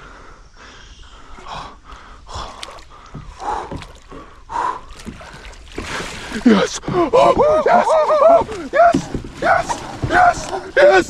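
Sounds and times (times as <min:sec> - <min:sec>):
person breathing hard: 0:00.0 - 0:06.2.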